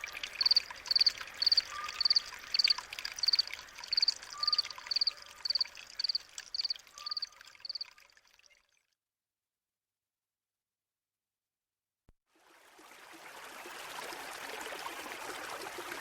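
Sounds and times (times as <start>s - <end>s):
running water: 0.0s - 8.8s, 12.4s - 16.0s
cricket chirping: 0.2s - 7.9s.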